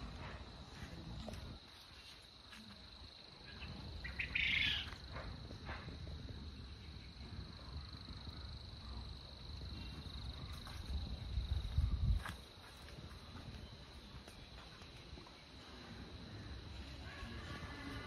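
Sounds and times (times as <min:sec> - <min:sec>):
bird calling: 0:03.5 - 0:05.0.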